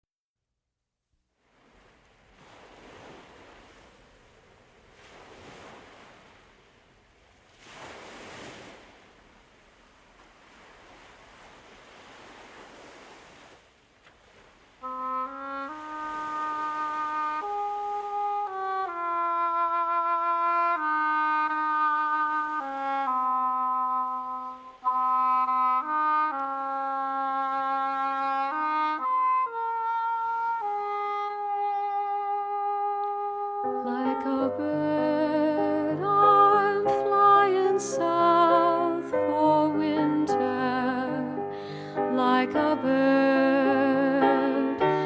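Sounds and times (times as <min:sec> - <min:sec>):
ocean waves washing in: 0:01.4 - 0:20.2
wind instrument slow melody: 0:14.8 - 0:45.0.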